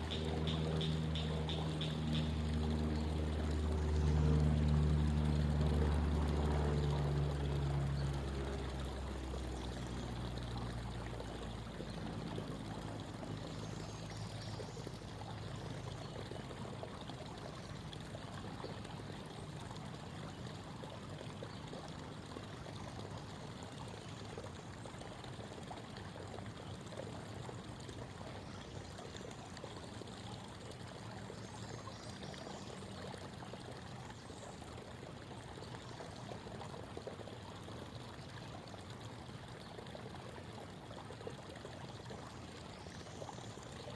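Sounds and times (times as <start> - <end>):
creek water babbling: 0.0 - 43.9
low motor hum: 0.0 - 43.9.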